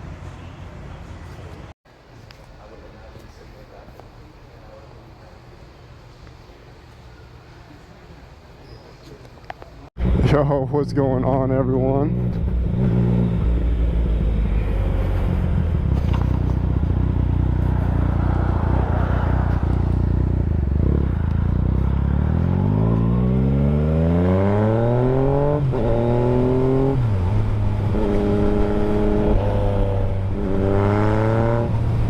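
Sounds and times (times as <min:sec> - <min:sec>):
motorcycle engine accelerating: 0:11.4 - 0:32.0.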